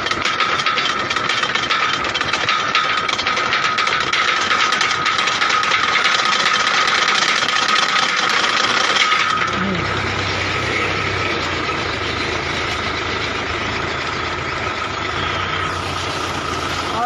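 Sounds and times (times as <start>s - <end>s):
fast even clatter: 0.0s - 17.0s
machine engine running: 0.0s - 17.0s
high whine: 8.6s - 17.0s.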